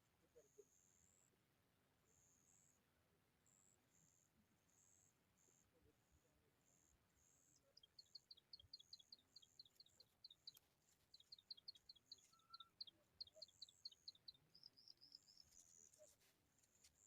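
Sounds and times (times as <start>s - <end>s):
small bird chirping: 7.4s - 17.0s.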